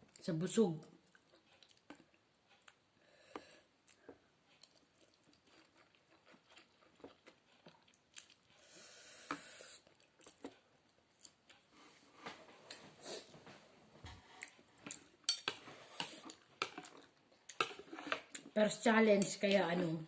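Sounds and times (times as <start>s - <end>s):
person chewing noodles: 1.0s - 11.8s, 14.2s - 18.6s.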